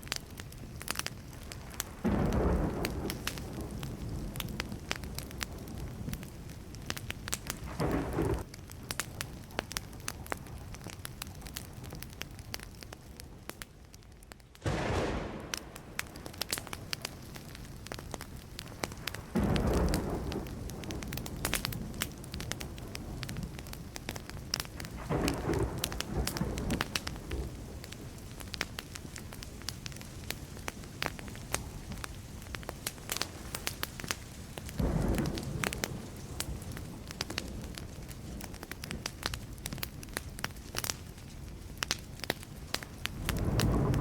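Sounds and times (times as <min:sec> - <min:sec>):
wood fire crackling and popping: 0:00.0 - 0:44.0
low thunder rumbles: 0:01.4 - 0:08.6, 0:14.6 - 0:40.5, 0:42.8 - 0:44.0.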